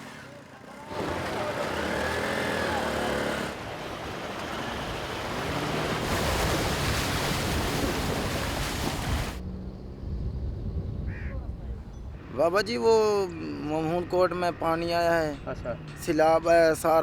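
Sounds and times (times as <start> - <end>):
floodwater rushing: 0.8 - 9.4
wind on microphone: 5.4 - 12.2.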